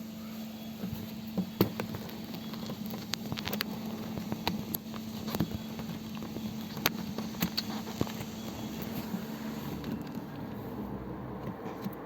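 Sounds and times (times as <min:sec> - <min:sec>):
handling clicks and knocks: 0:00.8 - 0:10.6
car engine idling: 0:03.5 - 0:12.0.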